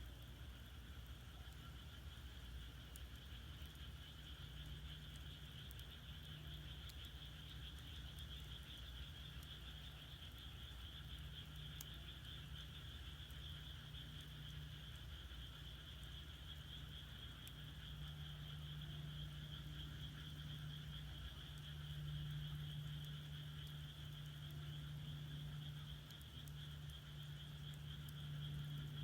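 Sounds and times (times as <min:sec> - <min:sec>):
firewood crackling: 0:00.0 - 0:17.8
frogs calling: 0:00.0 - 0:29.0
low rumble of fire: 0:00.0 - 0:29.0.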